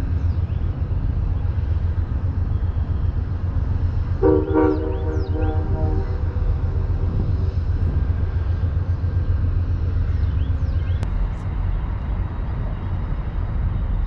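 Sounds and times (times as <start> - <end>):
low outdoor rumble: 0.0 - 14.0
train horn: 4.2 - 7.3.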